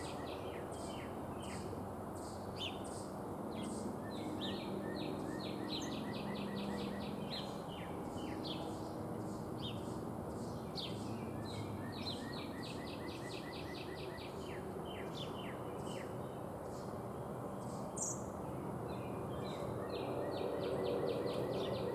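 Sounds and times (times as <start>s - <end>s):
songbird singing: 0.0s - 17.0s, 17.6s - 21.9s
low outdoor background hum: 0.0s - 21.9s.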